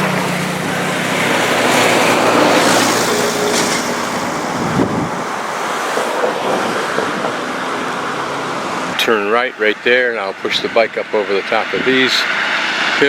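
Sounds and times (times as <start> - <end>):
vehicle engine hum: 0.0 - 6.0
wind buffeting microphone: 0.6 - 7.3.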